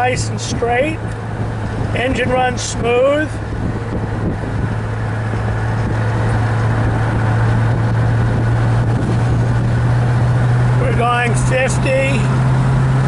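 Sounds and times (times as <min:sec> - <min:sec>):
car engine droning: 0:00.0 - 0:13.0
road noise: 0:00.0 - 0:13.0.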